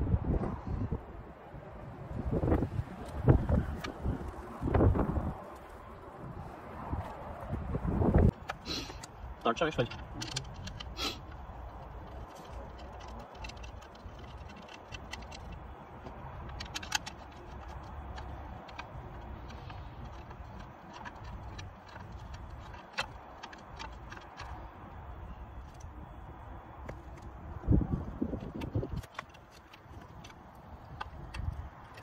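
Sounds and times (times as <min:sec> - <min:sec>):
metallic clicks of hand tools: 0:09.8 - 0:15.7, 0:16.4 - 0:24.6.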